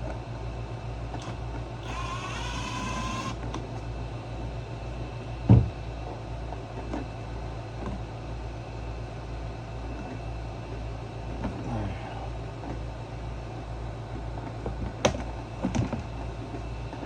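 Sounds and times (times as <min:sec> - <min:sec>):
electric drill motor whining: 0:01.2 - 0:03.5
loud thump: 0:05.5 - 0:05.8.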